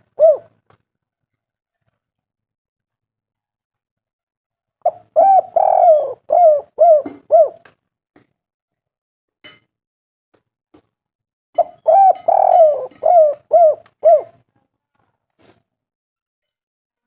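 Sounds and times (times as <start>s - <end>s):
dove cooing: 0.0s - 0.6s, 4.8s - 7.7s, 11.6s - 14.4s.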